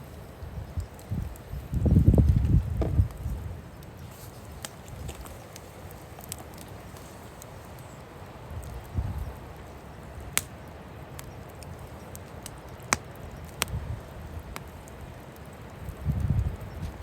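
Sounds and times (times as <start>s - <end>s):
burning logs popping: 0.0s - 17.0s
wood fire crackling: 0.0s - 17.0s
wind buffeting microphone: 0.4s - 4.1s, 8.5s - 9.5s, 12.9s - 17.0s.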